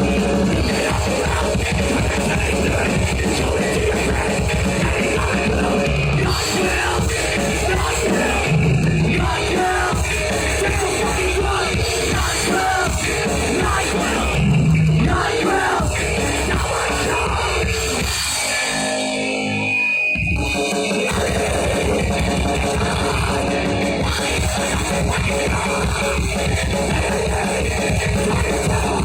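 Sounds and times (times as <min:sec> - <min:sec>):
punk band playing live: 0:00.0 - 0:29.0
shouted vocal: 0:15.0 - 0:17.7.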